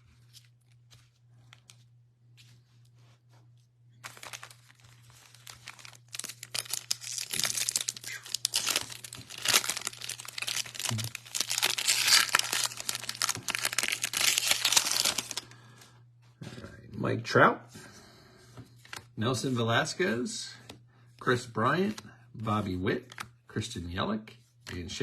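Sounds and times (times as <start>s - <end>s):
low steady hum: 0.0s - 25.0s
foil wrapper tearing and crinkling: 4.0s - 15.4s.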